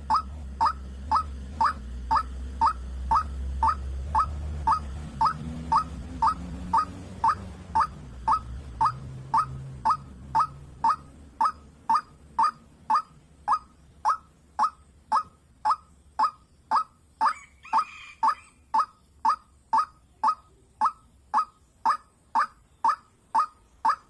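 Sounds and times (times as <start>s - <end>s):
low hum: 0.0s - 17.2s
waterhen calling: 0.0s - 24.0s.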